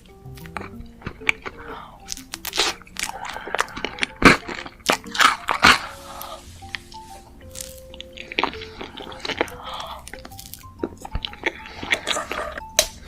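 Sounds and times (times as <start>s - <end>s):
soft background music: 0.0s - 13.0s
crunchy chewing of food: 0.2s - 13.0s.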